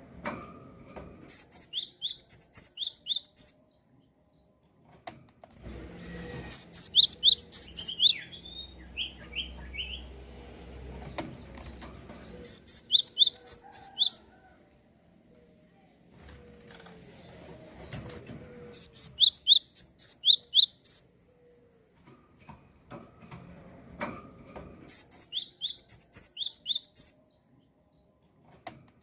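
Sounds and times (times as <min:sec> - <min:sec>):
softer lower bird chirps: 0:01.3 - 0:05.0, 0:06.1 - 0:10.1, 0:12.2 - 0:14.2, 0:18.7 - 0:21.9, 0:24.9 - 0:27.3.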